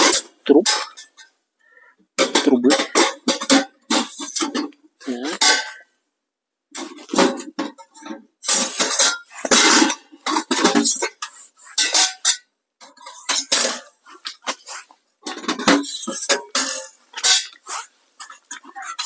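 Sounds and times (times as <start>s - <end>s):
metal stovepipe clanking: 0.0s - 1.2s, 6.8s - 19.0s.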